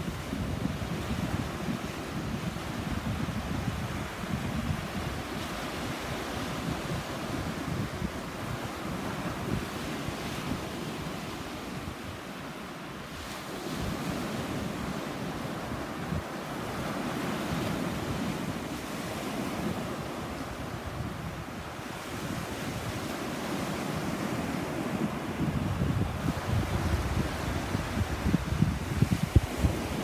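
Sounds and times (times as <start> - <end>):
wind buffeting microphone: 0.0 - 11.2, 23.9 - 30.0
sea surf washing onto beach: 0.0 - 30.0.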